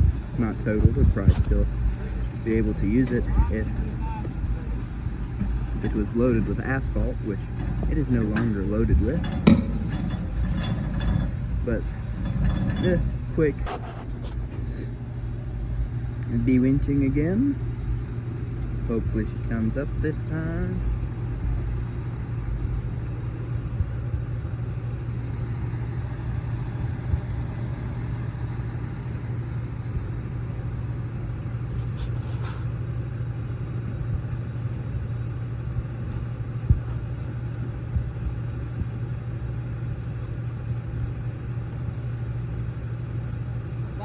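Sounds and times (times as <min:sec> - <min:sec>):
diesel engine droning: 0:00.0 - 0:44.0
sharp metal knocks: 0:00.4 - 0:14.0.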